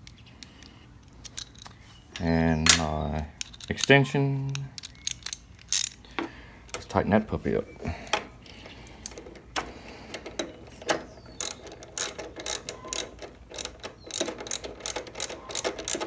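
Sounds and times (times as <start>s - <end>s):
socket ratchet clicking: 4.8s - 6.0s, 8.0s - 16.0s.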